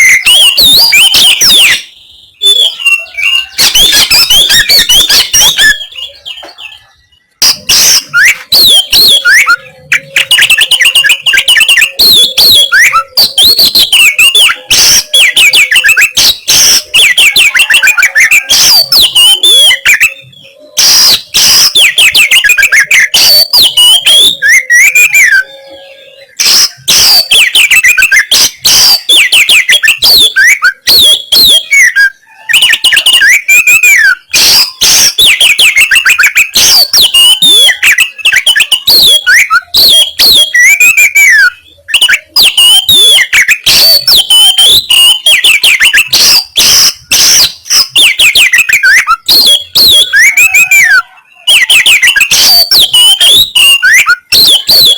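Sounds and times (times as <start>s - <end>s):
songbird singing harsh fast song: 0.0s - 54.9s.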